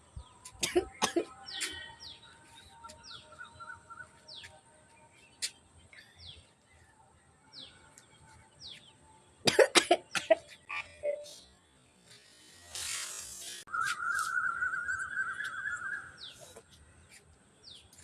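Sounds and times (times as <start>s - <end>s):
background hiss: 9.5s - 14.3s
faint bird chirps: 13.7s - 18.0s.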